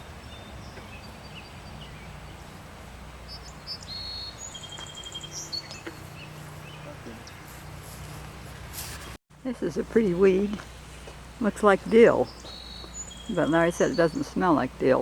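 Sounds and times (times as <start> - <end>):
small birds chirping and whistling: 3.3 - 7.8, 11.8 - 14.6.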